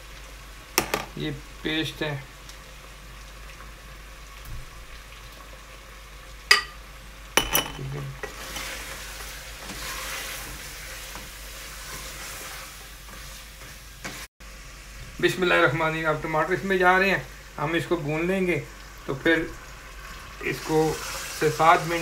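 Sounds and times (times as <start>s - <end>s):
meat and spices sizzling in oil: 0.0s - 22.0s
spoon knocking on pot: 0.8s - 1.1s, 6.5s - 6.8s.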